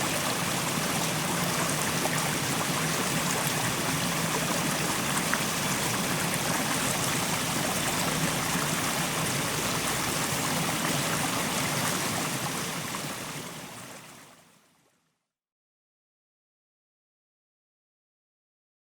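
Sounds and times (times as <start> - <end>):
stream splashing over rocks: 0.0 - 14.4.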